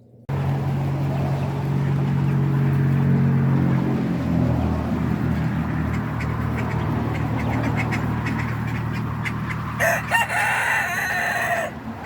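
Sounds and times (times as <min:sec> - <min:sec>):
ducks quacking: 0:05.2 - 0:11.7
rooster crowing: 0:09.8 - 0:11.9.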